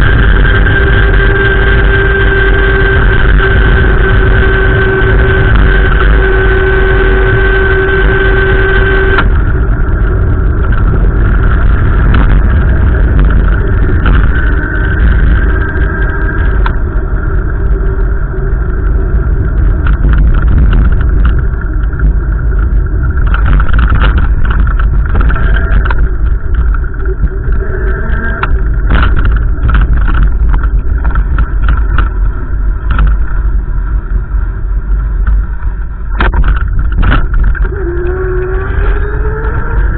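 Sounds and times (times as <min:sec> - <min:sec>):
wind buffeting microphone: 0:00.0 - 0:39.9
brief clicks and crackles: 0:19.8 - 0:33.4, 0:35.2 - 0:39.9.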